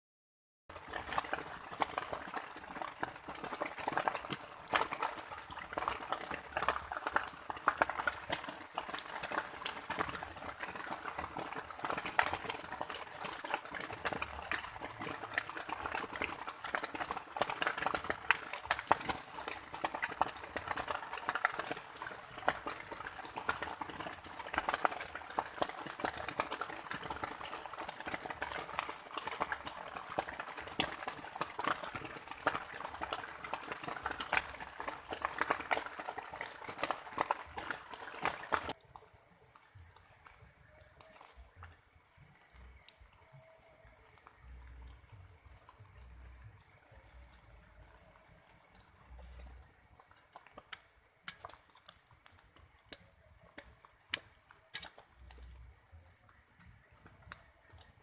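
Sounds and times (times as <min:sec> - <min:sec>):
raindrops ticking close by: 0:00.7 - 0:58.0
steady rain falling: 0:00.7 - 0:58.0.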